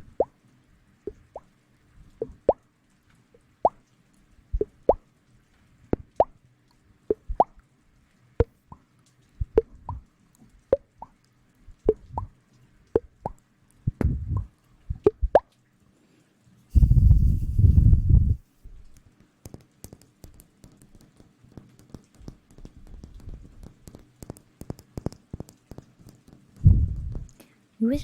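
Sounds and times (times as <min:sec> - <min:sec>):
low rubbing rumble: 0:16.7 - 0:18.4, 0:26.6 - 0:27.3.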